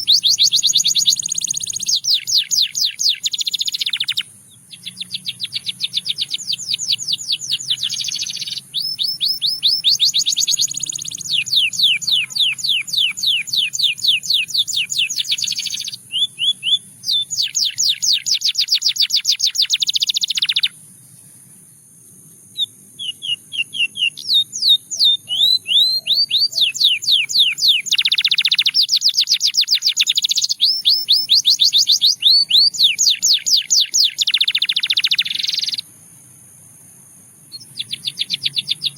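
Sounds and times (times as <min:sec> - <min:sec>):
canary singing trills: 0:00.0 - 0:21.3, 0:22.6 - 0:35.9, 0:37.5 - 0:38.9.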